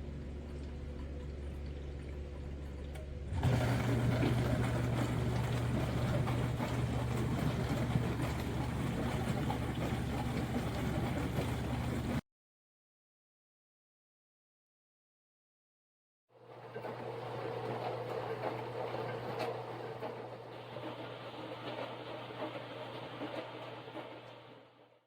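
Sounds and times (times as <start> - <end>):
dishwasher motor hum: 0.0 - 12.2, 16.4 - 25.0
wash pump droning: 0.0 - 12.2, 16.4 - 24.9
water spraying and splashing: 3.4 - 12.2.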